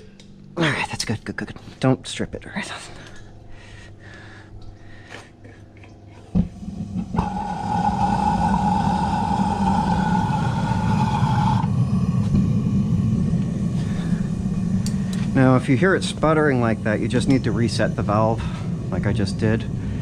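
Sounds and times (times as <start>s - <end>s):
forge burner roar: 3.5s - 20.0s
burner whistling tone: 6.7s - 19.8s.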